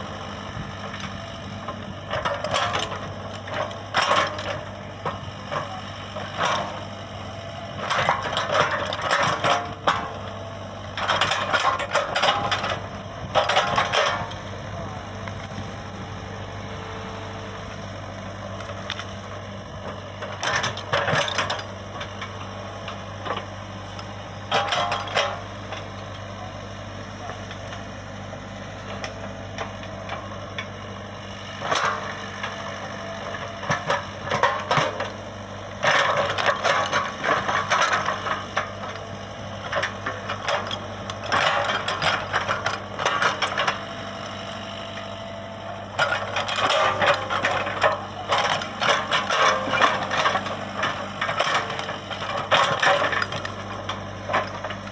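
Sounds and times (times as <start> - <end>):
excavator diesel engine running: 0.0 - 54.9
mechanical clatter and rattle: 11.0 - 14.5, 18.5 - 26.4, 31.6 - 43.8, 45.9 - 54.9.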